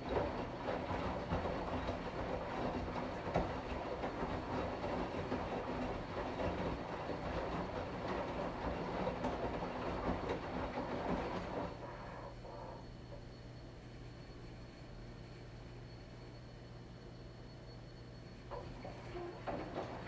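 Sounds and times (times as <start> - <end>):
washing machine drum churning: 0.0 - 12.2, 18.5 - 20.0
washing machine hum: 0.0 - 17.1, 18.4 - 20.0.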